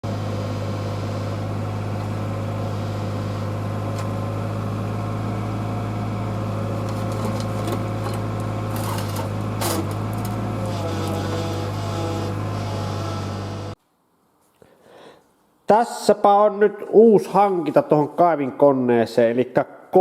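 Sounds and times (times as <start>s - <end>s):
diesel engine idling: 0.0s - 13.8s.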